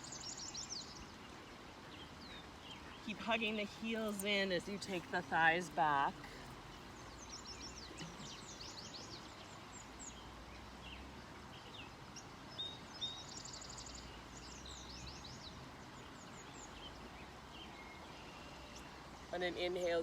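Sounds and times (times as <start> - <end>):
creek rushing: 0.0 - 20.0
songbirds chirping and trilling: 0.0 - 20.0.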